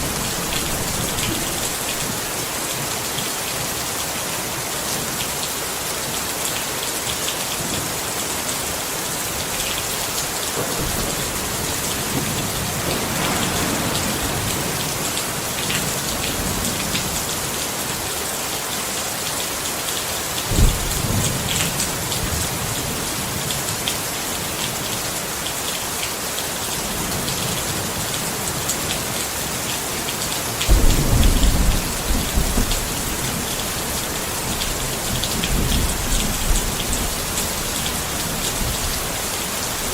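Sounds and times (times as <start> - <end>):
thunder rumbling: 0.0 - 2.2, 10.5 - 17.2, 20.5 - 23.0, 30.7 - 38.9
rain pattering on a tent: 0.0 - 39.9.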